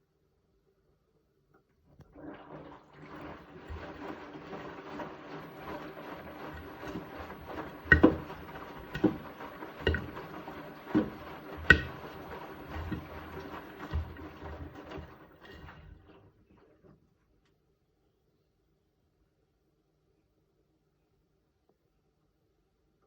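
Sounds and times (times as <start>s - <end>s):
washing machine drum turning: 2.2s - 16.4s
motor hum: 3.0s - 16.3s
wet load thudding in drum: 3.1s - 16.2s.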